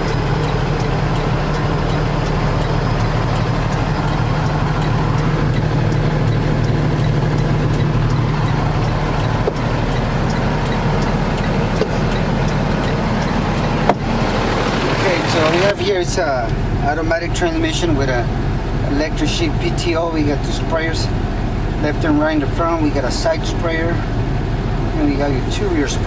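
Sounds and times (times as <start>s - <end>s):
faint regular ticking: 0.0s - 16.2s
diesel truck engine idling: 0.0s - 26.0s.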